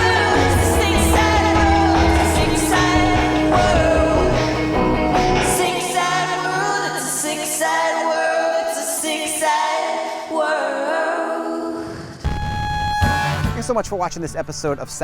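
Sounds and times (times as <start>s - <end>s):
layered singing voices: 0.0s - 12.3s.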